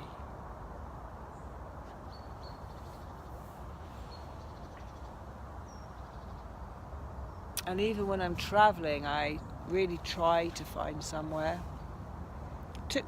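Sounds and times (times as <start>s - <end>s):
low rumbling background noise: 0.0s - 13.0s.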